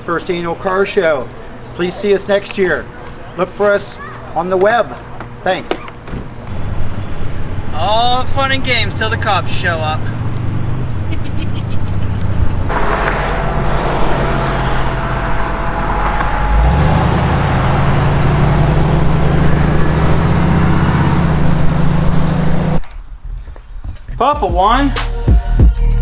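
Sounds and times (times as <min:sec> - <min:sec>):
loud vehicle engine drone: 0:06.3 - 0:22.8.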